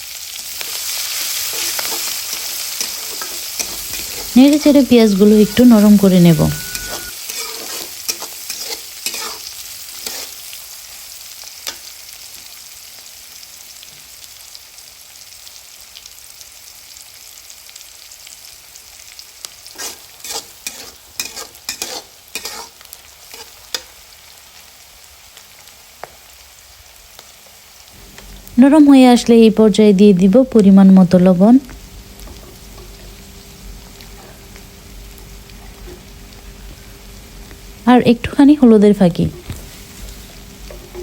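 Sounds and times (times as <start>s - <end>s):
onion sizzling in hot oil: 0.0s - 41.0s
spatula scraping pan: 0.6s - 5.8s, 6.5s - 10.5s, 19.7s - 23.9s.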